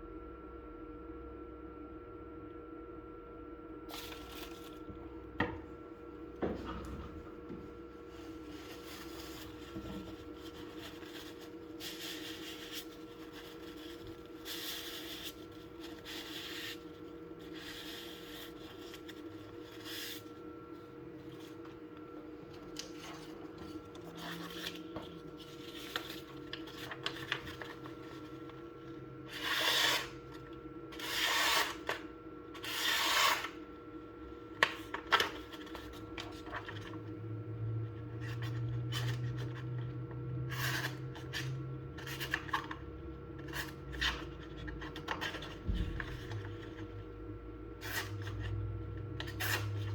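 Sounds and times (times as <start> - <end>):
steady hum: 0.0 - 49.9
knife packaging rubbing and scraping: 8.2 - 20.4, 29.3 - 30.2, 31.0 - 32.0, 32.6 - 33.6.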